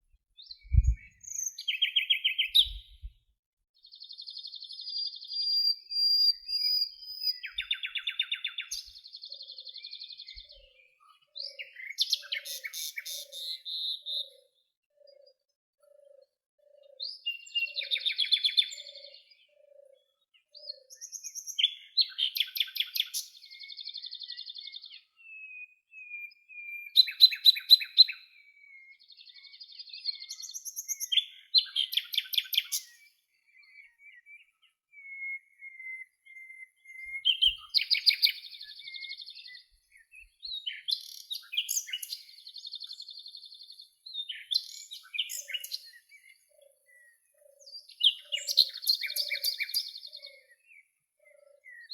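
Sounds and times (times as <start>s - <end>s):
songbirds trilling and chirping: 0.0s - 51.9s
thin drawn-out bird whistle: 0.4s - 3.1s, 5.1s - 9.0s, 11.5s - 14.4s, 24.8s - 29.6s, 30.2s - 43.0s, 44.3s - 51.9s
faint low bird call: 0.5s - 3.2s.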